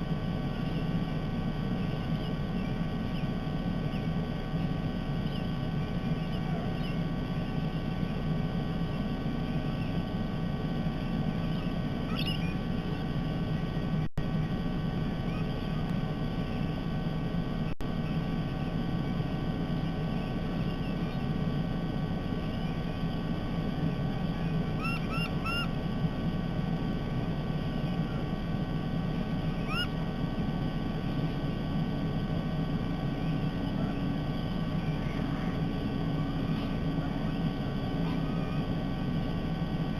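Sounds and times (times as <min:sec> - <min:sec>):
low background hum: 0:00.0 - 0:39.9
bird chirps: 0:00.5 - 0:10.0, 0:11.0 - 0:12.6, 0:19.9 - 0:21.3, 0:24.2 - 0:25.7, 0:29.4 - 0:29.9.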